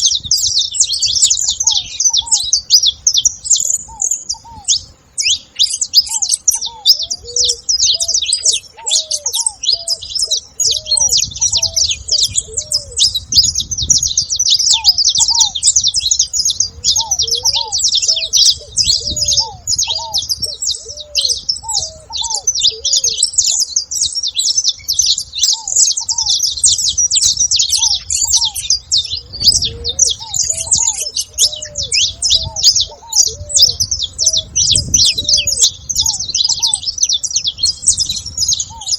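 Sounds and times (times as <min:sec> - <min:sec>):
flock of finches chirping: 0:00.0 - 0:38.9.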